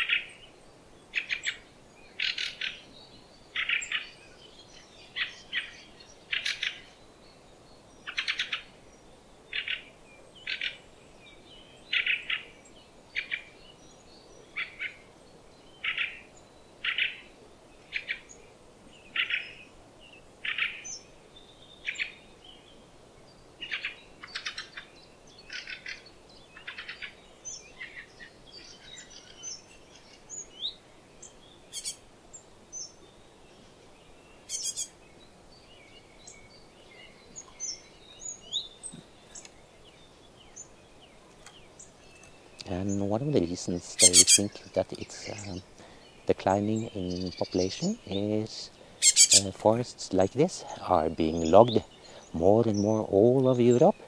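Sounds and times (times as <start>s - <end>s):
bird calling: 1.1s - 2.9s, 5.1s - 7.0s, 8.0s - 8.8s, 9.5s - 10.9s, 11.8s - 13.6s, 14.4s - 15.2s, 15.8s - 18.4s, 19.0s - 19.7s, 20.4s - 21.0s, 23.6s - 32.1s, 34.4s - 35.0s, 35.8s - 54.0s
high bird chirps: 23.7s - 32.0s, 34.4s - 35.0s, 41.4s - 54.0s.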